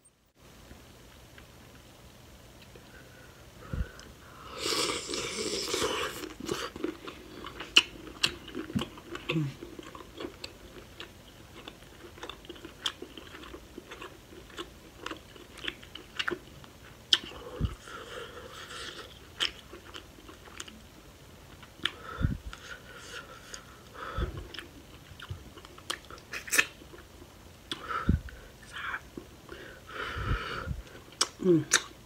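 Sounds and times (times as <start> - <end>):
chewing with clicks and smacks: 5.7 - 20.9, 21.5 - 27.9, 30.8 - 31.9.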